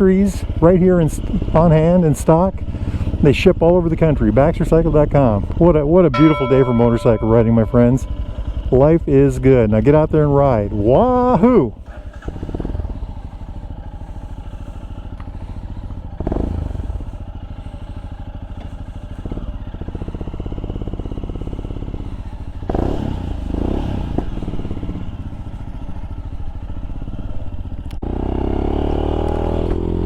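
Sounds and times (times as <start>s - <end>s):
motorcycle engine running: 0.0s - 7.3s, 8.0s - 30.0s.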